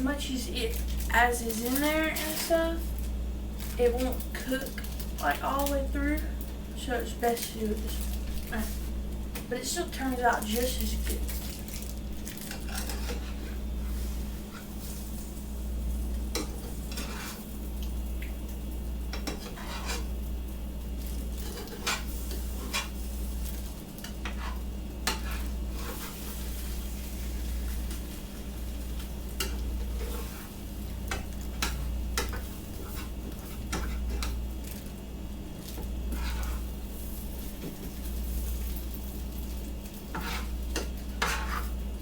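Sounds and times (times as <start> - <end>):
faint sizzling: 0.0 - 42.0
steady low hum: 0.0 - 42.0
utensil scraping frying pan: 12.4 - 15.2, 16.3 - 17.5, 19.1 - 20.2, 21.1 - 34.4, 35.7 - 37.9, 40.0 - 41.8.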